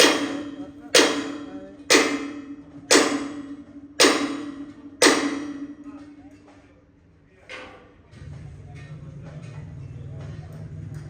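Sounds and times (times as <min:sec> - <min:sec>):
hammer striking metal: 0:00.0 - 0:06.7.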